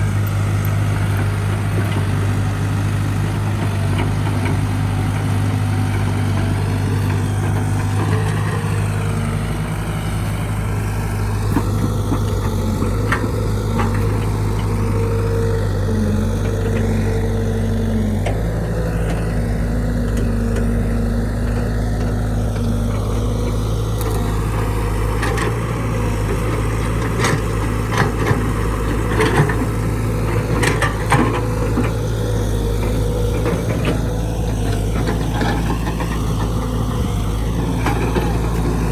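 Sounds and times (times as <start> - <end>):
diesel engine running: 0.0 - 38.9
hydraulic whines: 11.2 - 38.9.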